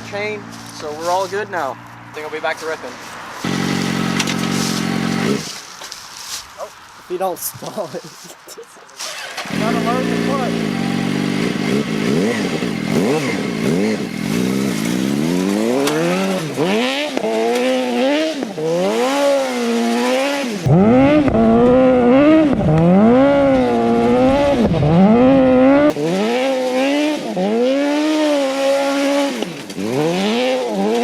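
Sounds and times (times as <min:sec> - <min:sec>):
kart engine revving: 0:03.4 - 0:05.6, 0:09.0 - 0:31.0.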